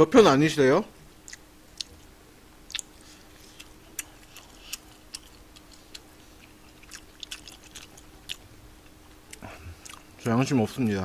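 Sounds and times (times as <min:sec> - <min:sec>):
faint steady hum: 0:00.0 - 0:11.0
chewing mouth clicks: 0:01.2 - 0:02.0, 0:02.7 - 0:08.4.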